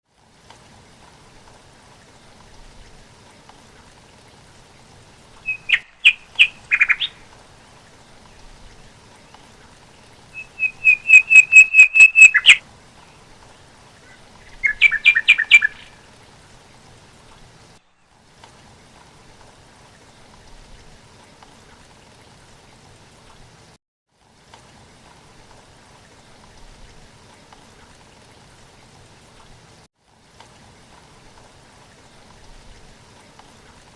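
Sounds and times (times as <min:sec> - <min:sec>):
faint steady background hiss: 0:00.1 - 0:33.9
bird calling rapid repeated notes: 0:05.4 - 0:07.3, 0:10.3 - 0:12.6, 0:14.4 - 0:16.0.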